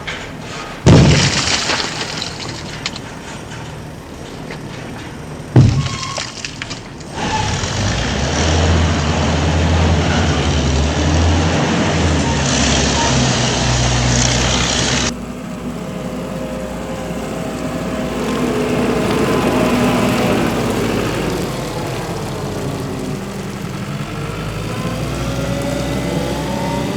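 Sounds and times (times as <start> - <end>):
steady engine hum: 0.0 - 26.9
truck engine running loudly: 0.0 - 26.9
sharp bang: 5.5 - 7.5.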